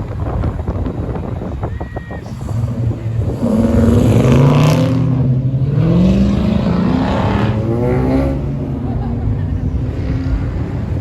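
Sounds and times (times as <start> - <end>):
car engine revving: 2.3 - 11.0.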